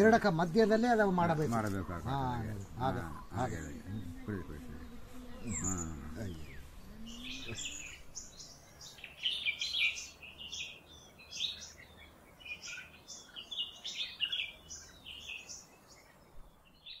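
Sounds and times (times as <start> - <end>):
faint low hum: 0.0 - 9.0
small birds chirping: 0.0 - 17.0.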